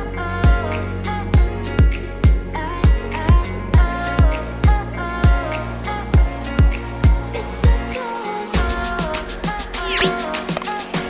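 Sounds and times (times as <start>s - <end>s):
deep kick drum: 6.2s - 7.8s.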